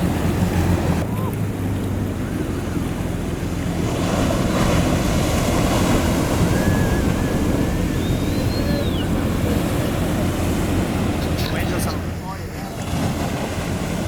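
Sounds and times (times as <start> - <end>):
wind on microphone: 0.0 - 12.2
ocean waves washing: 0.0 - 14.0
thin wavering whistle: 6.3 - 9.4.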